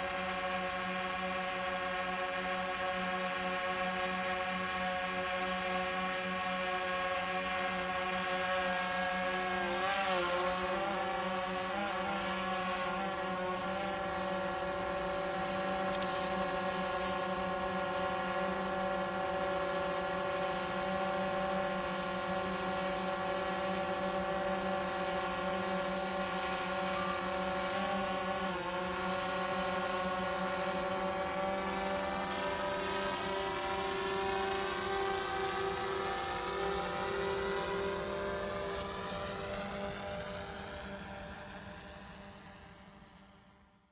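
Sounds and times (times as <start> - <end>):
drone propellers whining: 8.2 - 43.2.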